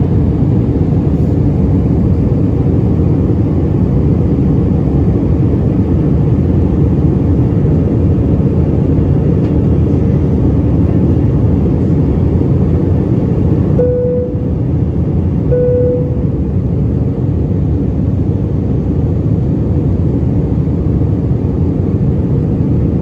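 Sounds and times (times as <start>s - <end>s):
airplane cabin engine roar: 0.0s - 23.0s
faint steady hum: 12.6s - 17.4s.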